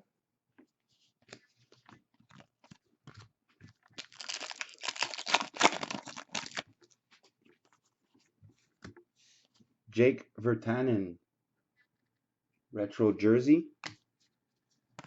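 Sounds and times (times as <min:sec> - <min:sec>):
plastic packaging crinkling: 0:03.9 - 0:06.7.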